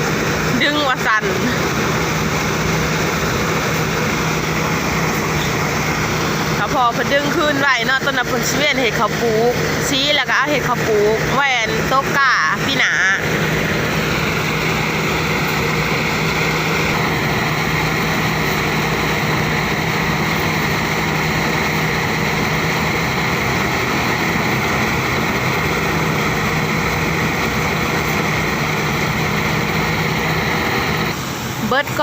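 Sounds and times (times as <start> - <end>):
threshing machine running: 0.0 - 32.0.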